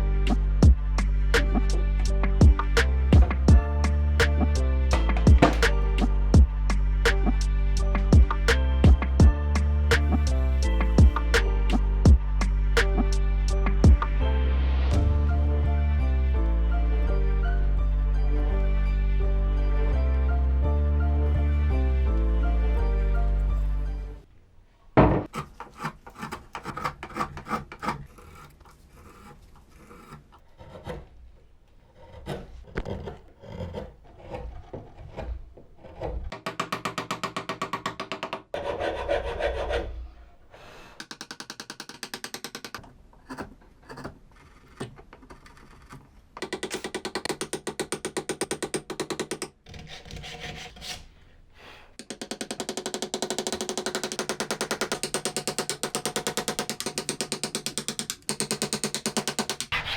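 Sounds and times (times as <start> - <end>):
wood being filed and sanded: 25.3 - 31.0, 38.5 - 40.0, 49.7 - 51.1.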